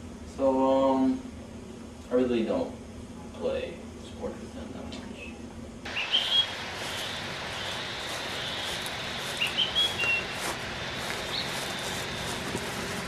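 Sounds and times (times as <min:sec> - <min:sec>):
steady hiss: 0:05.8 - 0:13.0
high bird chirps: 0:05.9 - 0:12.0.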